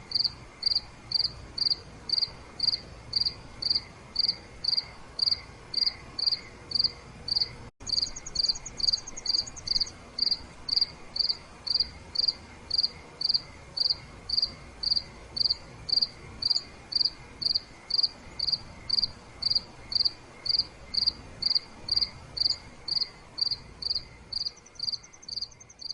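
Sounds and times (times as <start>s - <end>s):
cricket chirping: 0.0s - 25.9s
faint high insect trill: 0.0s - 25.9s.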